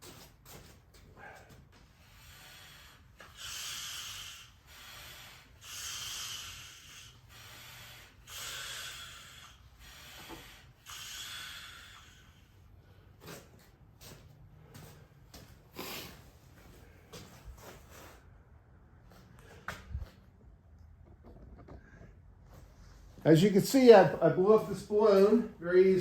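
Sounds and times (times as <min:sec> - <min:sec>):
hand air pump hissing: 0:02.0 - 0:13.5.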